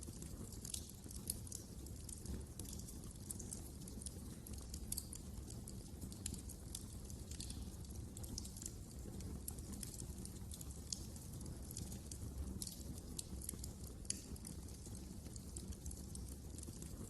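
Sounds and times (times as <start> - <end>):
fireplace fire crackling: 0.0 - 17.0
low rumble of burning: 0.0 - 17.0.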